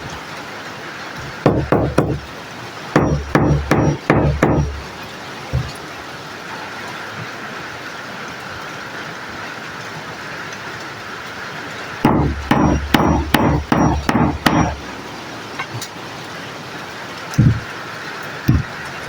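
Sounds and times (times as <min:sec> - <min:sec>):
hammer tapping metal: 0:01.3 - 0:02.3, 0:03.0 - 0:04.9, 0:12.1 - 0:14.9, 0:17.4 - 0:17.6, 0:18.5 - 0:18.7.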